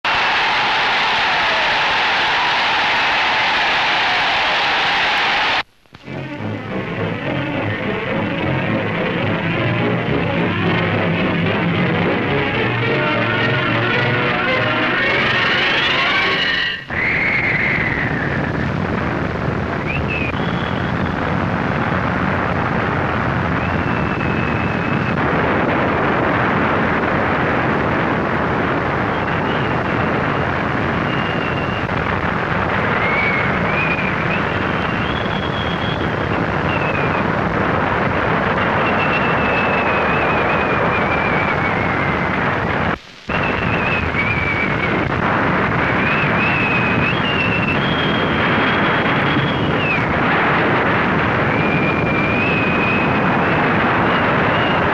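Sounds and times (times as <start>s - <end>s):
blizzard wind rushing: 0.0s - 54.9s
wavering wind whistle: 12.2s - 18.7s, 19.8s - 21.4s, 23.3s - 25.4s, 28.8s - 37.5s, 38.1s - 54.9s.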